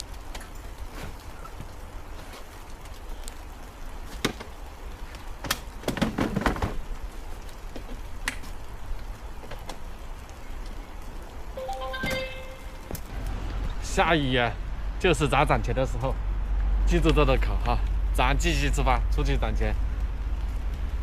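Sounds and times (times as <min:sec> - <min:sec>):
rain pattering on a tent: 0:00.0 - 0:21.0
rising electronic tone: 0:11.6 - 0:13.0.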